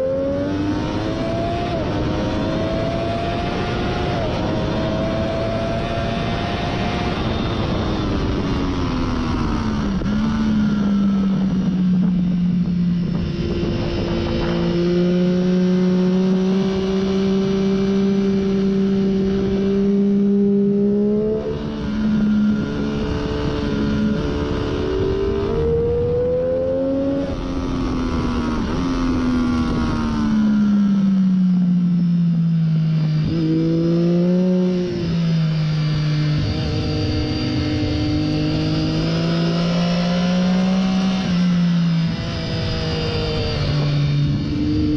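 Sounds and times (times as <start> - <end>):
rushing wind noise: 0.0 - 31.0, 32.8 - 44.9
motorcycle engine revving: 0.0 - 44.9.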